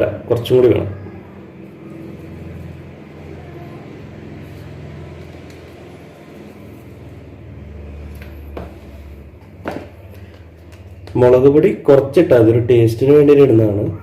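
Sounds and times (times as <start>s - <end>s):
low motor hum: 0.9s - 11.2s.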